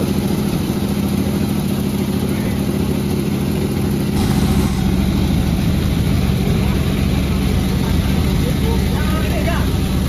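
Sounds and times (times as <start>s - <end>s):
chainsaw engine running: 4.2s - 10.0s.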